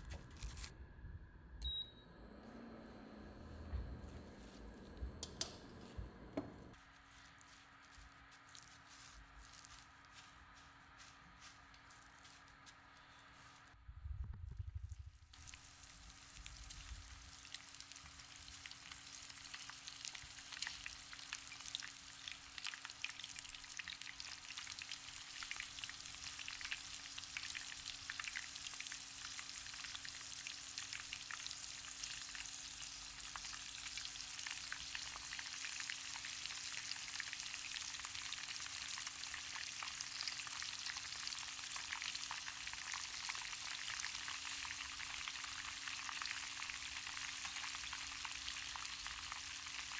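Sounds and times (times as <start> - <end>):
crackling sizzle: 3.2 - 13.8, 14.7 - 49.9
shrimp deep-frying in oil: 15.2 - 49.9.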